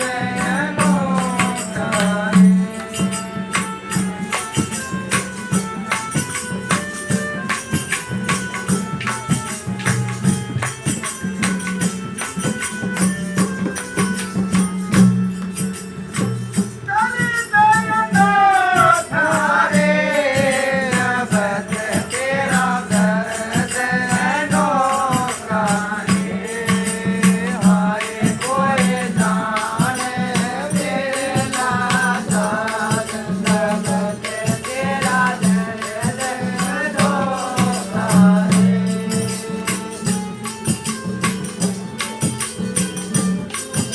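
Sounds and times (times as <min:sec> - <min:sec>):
person singing: 0:00.0 - 0:03.5
jingling tambourine beat: 0:00.0 - 0:43.9.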